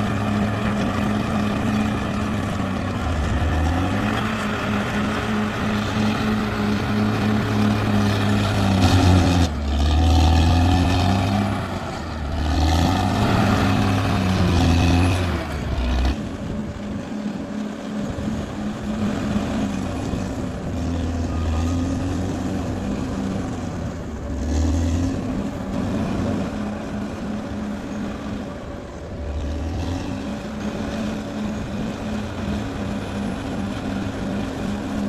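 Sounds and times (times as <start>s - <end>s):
bulldozer engine revving: 0.0s - 35.0s.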